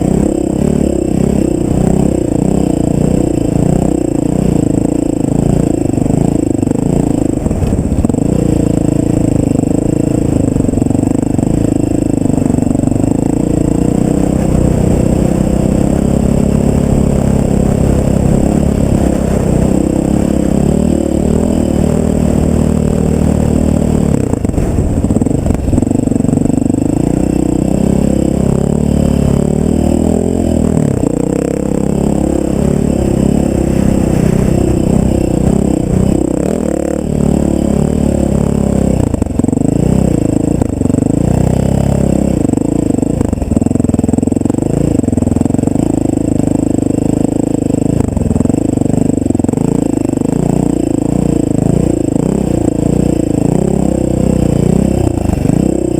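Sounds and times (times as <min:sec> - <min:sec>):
off-road vehicle engine revving: 0:00.0 - 0:55.9.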